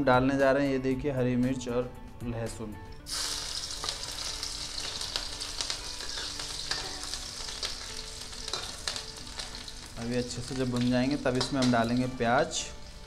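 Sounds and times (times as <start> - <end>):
garlic frying in hot oil: 3.1 - 13.0.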